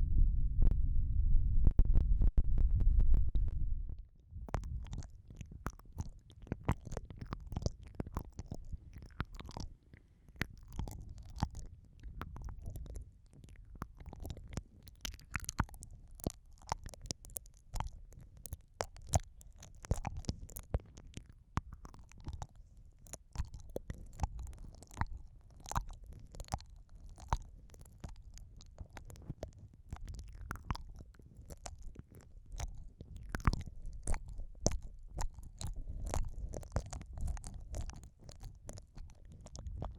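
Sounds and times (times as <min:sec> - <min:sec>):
low muffled rumble: 0:00.0 - 0:04.9
wet mouth clicks and smacks: 0:04.4 - 0:39.9.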